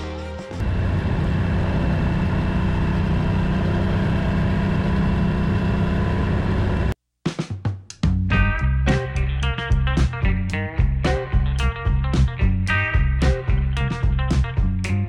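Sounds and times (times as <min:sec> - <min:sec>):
motorcycle engine running: 0:00.6 - 0:06.9
wind and road rush: 0:00.6 - 0:06.9.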